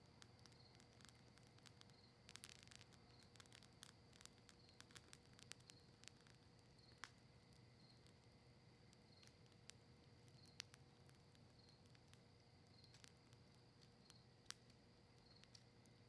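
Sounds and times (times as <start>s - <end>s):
faint campfire crackling: 0.0s - 16.0s.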